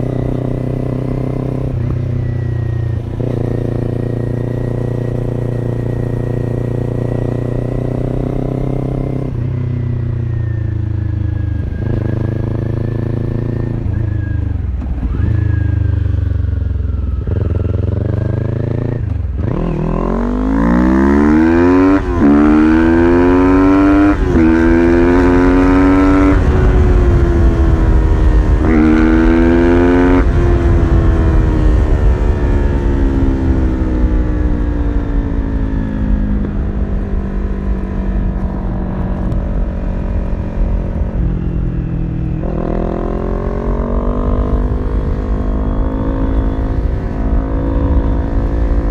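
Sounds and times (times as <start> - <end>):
motorcycle engine accelerating: 0.0 - 48.9
wind noise: 17.0 - 48.9.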